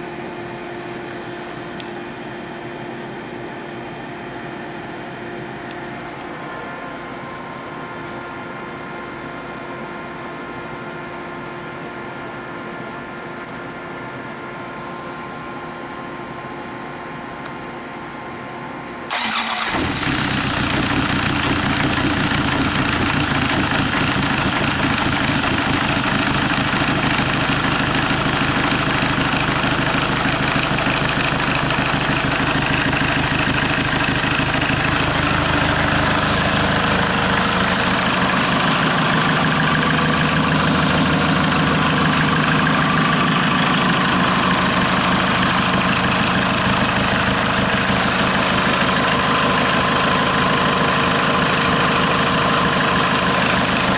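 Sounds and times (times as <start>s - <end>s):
diesel engine idling: 19.1s - 53.9s.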